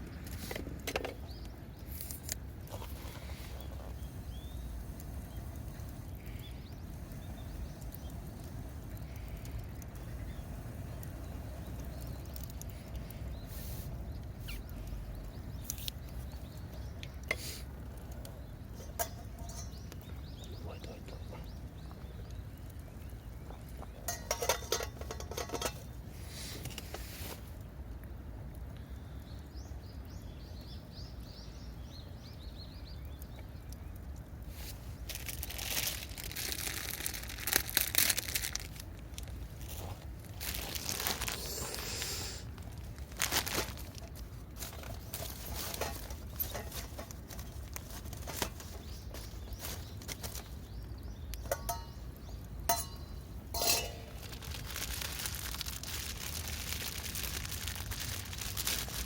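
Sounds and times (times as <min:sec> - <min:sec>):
crackles and rustles: 0:00.0 - 0:29.4, 0:32.5 - 0:59.0
soft hiss: 0:01.8 - 0:16.1, 0:39.6 - 0:44.3
bird chirping: 0:03.0 - 0:24.7
hard objects clinking and rattling: 0:24.1 - 0:26.0, 0:43.2 - 0:50.4, 0:52.7 - 0:56.4.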